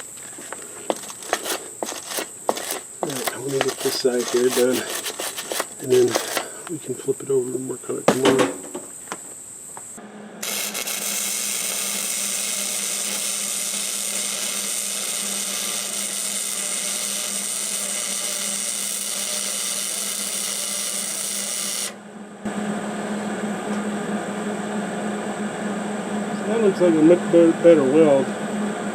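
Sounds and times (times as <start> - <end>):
welding arc hissing: 0.0 - 22.0
low steady hum: 22.0 - 28.9.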